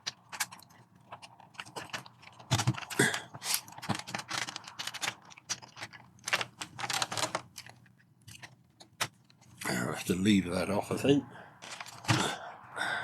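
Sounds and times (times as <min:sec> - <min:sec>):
plastic case clicks and scrapes: 0:00.0 - 0:09.6, 0:11.6 - 0:12.3.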